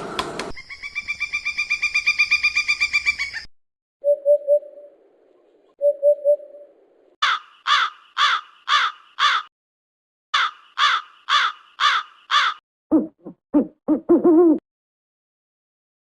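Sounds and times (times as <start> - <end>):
crow cawing: 7.2 - 9.5, 10.4 - 12.6.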